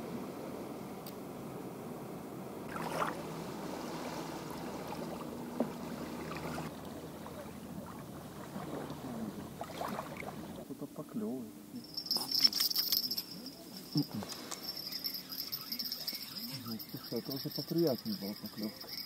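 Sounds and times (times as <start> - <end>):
wind and water noise: 0.0 - 19.0
rustle: 2.5 - 19.0.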